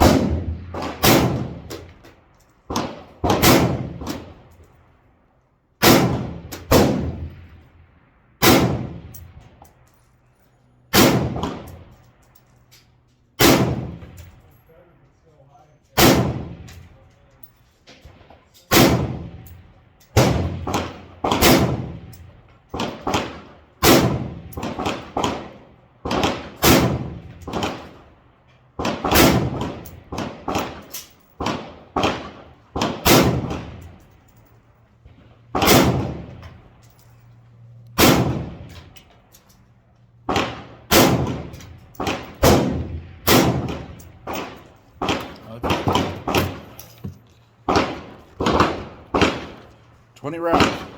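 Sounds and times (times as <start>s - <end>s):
rifle shots: 0.0s - 2.0s, 2.7s - 4.5s, 5.8s - 7.8s, 8.4s - 9.6s, 10.9s - 12.1s, 13.4s - 14.4s, 16.0s - 17.0s, 18.1s - 28.2s, 28.8s - 36.8s, 38.0s - 39.2s, 40.2s - 46.9s, 47.6s - 50.9s.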